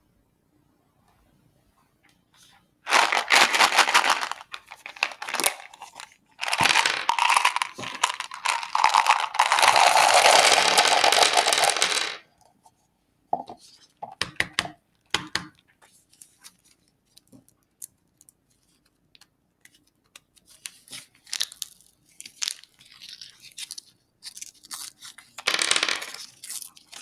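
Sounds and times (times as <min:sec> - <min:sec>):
candy wrappers crinkling: 0:02.9 - 0:12.2, 0:21.2 - 0:27.0.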